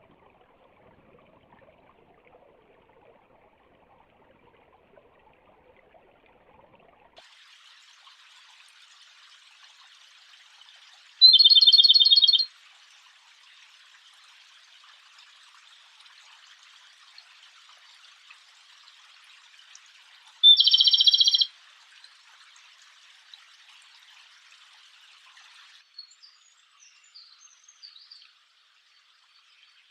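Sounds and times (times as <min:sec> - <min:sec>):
songbird trilling: 0:11.2 - 0:12.5, 0:20.4 - 0:21.5.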